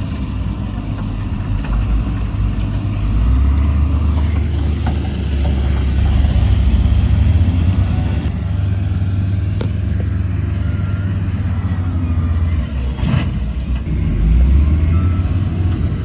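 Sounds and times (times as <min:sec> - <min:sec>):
diesel engine rumbling: 0:00.0 - 0:16.0.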